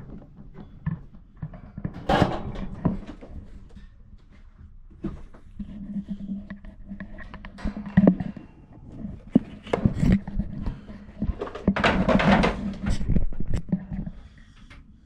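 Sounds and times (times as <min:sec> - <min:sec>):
rustling and scraping: 0:00.0 - 0:14.6
items clunking and clattering: 0:00.0 - 0:14.7.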